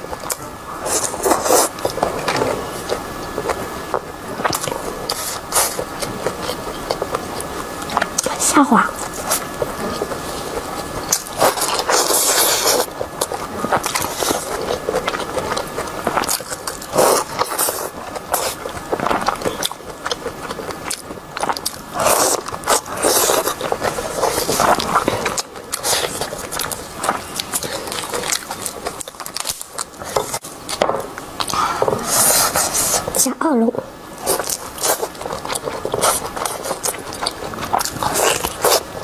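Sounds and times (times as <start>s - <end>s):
person chewing and biting food: 0.1s - 30.8s, 34.2s - 39.0s.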